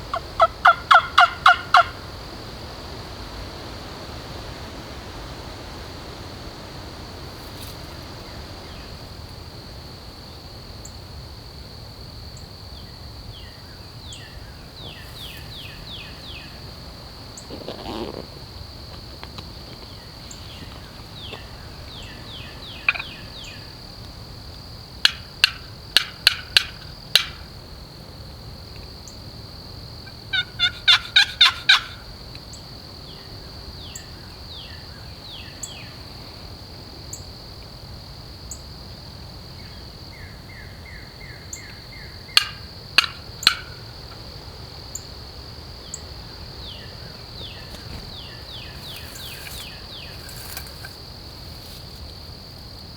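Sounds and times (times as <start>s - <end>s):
high insect drone: 0.0s - 52.9s
turkey yelping: 0.1s - 2.0s, 21.3s - 23.5s, 30.0s - 32.0s
songbird chirps: 12.4s - 16.8s, 19.0s - 24.0s, 45.8s - 52.1s.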